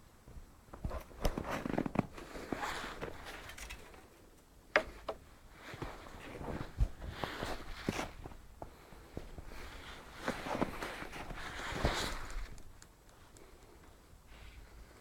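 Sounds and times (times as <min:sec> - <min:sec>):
rustling: 0:00.7 - 0:15.0
handling clicks and knocks: 0:03.0 - 0:05.2
footsteps: 0:04.8 - 0:12.8.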